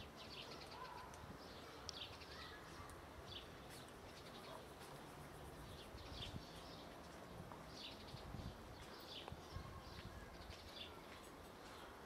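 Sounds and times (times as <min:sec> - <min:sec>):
faint bird chirps: 0:00.2 - 0:07.0.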